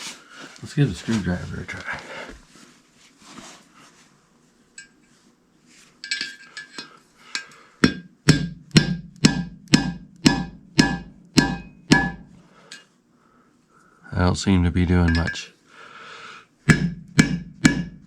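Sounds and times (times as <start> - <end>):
hammer striking a screwdriver: 7.8 - 12.4, 16.7 - 18.0.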